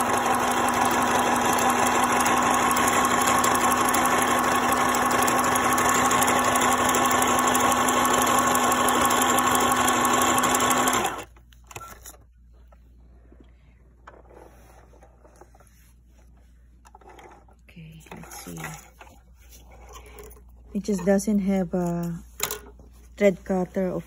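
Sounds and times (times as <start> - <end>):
sewing machine motor whine: 0.0 - 11.3.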